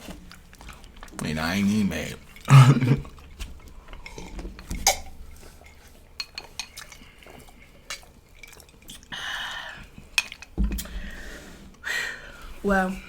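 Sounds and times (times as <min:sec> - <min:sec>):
cutlery and dishes clinking: 0:02.2 - 0:08.8, 0:10.1 - 0:10.9.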